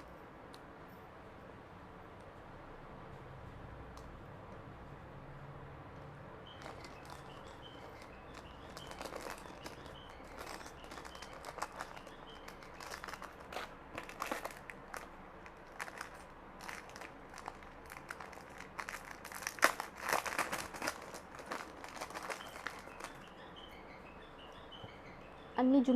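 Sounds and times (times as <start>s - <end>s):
plastic packaging crinkling: 6.5s - 23.4s.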